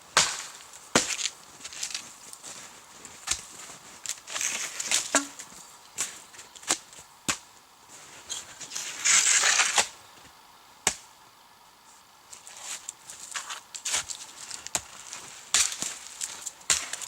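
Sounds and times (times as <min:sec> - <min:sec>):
dry firewood snapping: 0:00.2 - 0:02.6, 0:03.2 - 0:07.5, 0:12.8 - 0:17.0
wood rustling and crunching: 0:00.2 - 0:09.9, 0:12.3 - 0:17.0.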